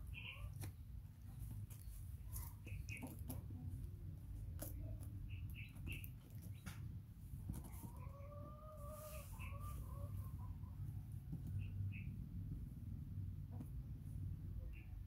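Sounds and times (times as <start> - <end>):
birds chirping: 0.0 - 3.8, 4.7 - 7.0, 11.5 - 12.2
fingers picking at a woven mat: 0.5 - 8.2.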